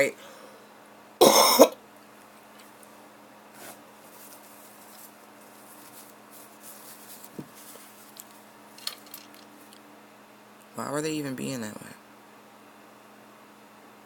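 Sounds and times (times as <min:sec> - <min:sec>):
low electrical hum: 0:00.0 - 0:14.0
faint ticks and rustles: 0:04.1 - 0:09.8.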